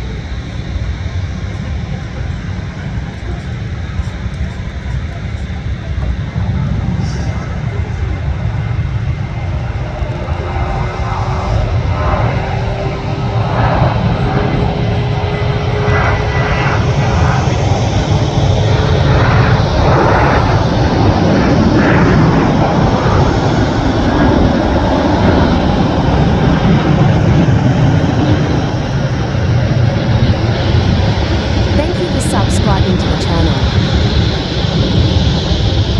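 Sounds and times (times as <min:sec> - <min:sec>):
jet engines roaring: 0:00.0 - 0:35.9.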